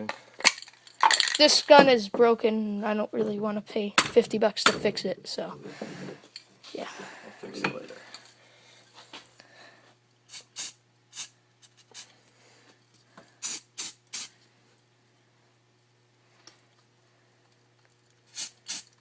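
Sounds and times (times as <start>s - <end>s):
spray paint can hissing: 10.3s - 12.1s, 13.4s - 14.3s, 18.3s - 19.0s.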